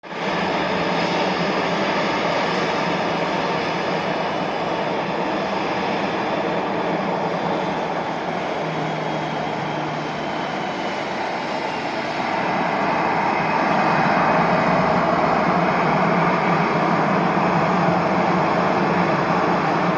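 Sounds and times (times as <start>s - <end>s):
jet engines running: 0.1s - 19.9s.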